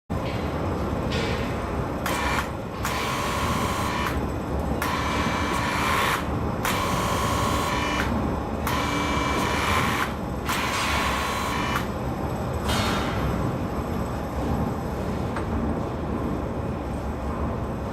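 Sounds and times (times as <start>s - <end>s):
power tool running in bursts: 2.1s - 4.2s, 4.8s - 8.1s, 8.7s - 11.9s.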